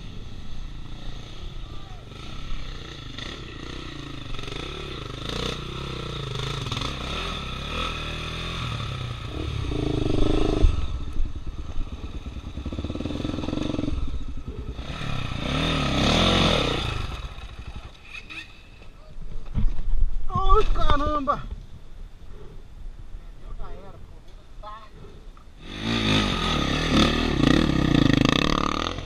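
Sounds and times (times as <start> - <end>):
dirt bike engine revving: 0.7 - 18.6, 25.6 - 29.0.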